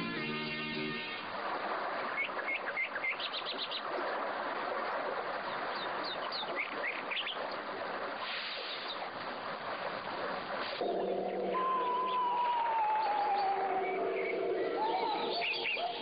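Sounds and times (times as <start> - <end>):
small birds chirping: 2.0 - 7.8, 10.8 - 16.0.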